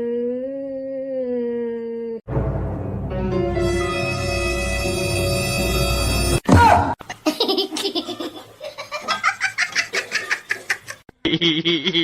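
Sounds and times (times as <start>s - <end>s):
music: 2.3s - 6.4s
person laughing hard: 7.2s - 12.0s.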